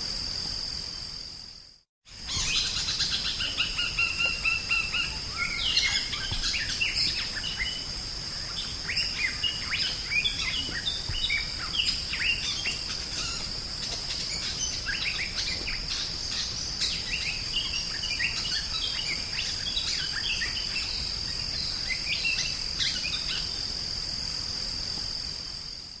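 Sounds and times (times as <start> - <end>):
high insect buzz: 0.0 - 26.0
bird singing chirps and whistles: 2.2 - 13.5, 14.1 - 23.5.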